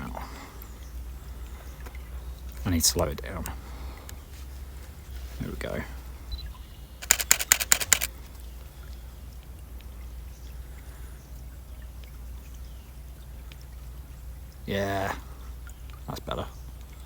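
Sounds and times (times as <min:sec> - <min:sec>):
stream water running: 0:00.0 - 0:17.0
camera shutter clicking: 0:07.0 - 0:08.1.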